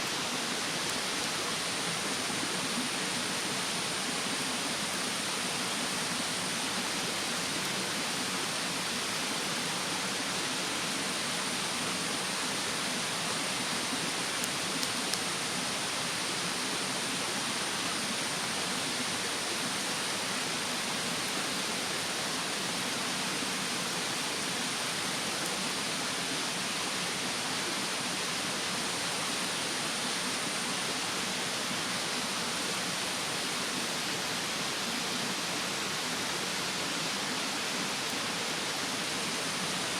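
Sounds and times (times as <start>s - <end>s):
mountain stream rushing: 0.0s - 39.9s
bonfire crackles: 13.0s - 15.7s.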